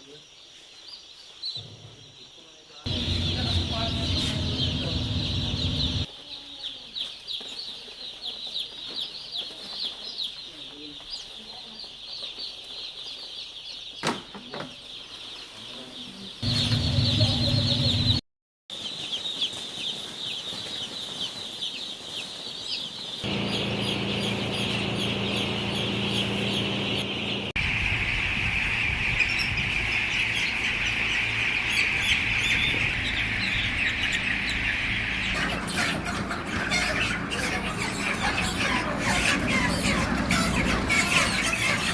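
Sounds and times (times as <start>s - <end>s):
chicks cheeping: 0.0s - 41.9s
low hum: 2.9s - 6.1s, 16.4s - 18.2s, 23.2s - 27.8s.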